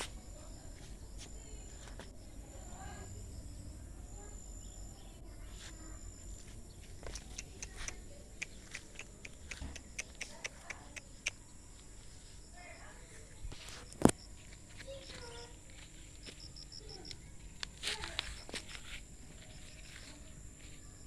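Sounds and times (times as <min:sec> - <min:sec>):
high insect trill: 0:00.0 - 0:21.0
sharp small clicks: 0:06.8 - 0:11.5.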